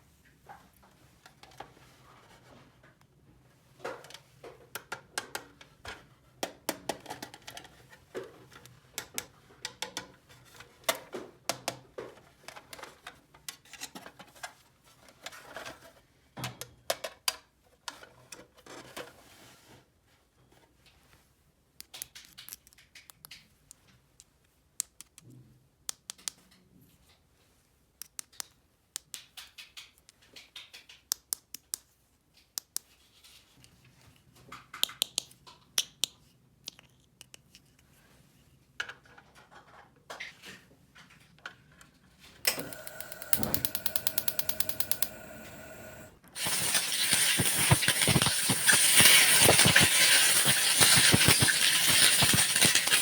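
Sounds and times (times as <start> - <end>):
fast even ticking: 42.5 - 45.8
loud steady hiss: 42.5 - 53.0.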